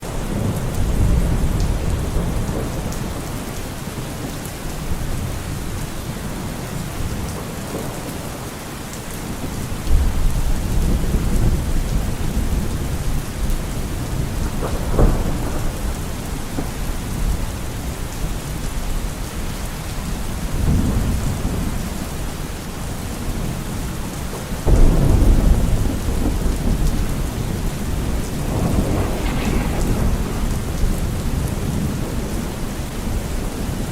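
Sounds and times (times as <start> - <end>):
steady rain falling: 0.0 - 33.9
thunder rolling: 24.7 - 33.8.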